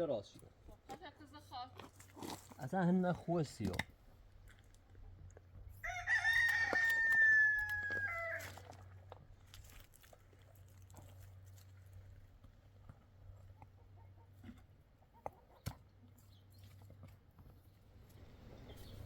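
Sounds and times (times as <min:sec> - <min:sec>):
rooster crowing: 0:05.8 - 0:08.7.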